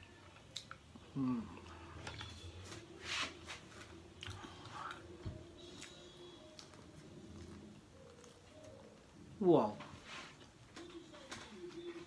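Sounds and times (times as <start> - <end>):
chewing and biting pizza: 5.7 - 9.0.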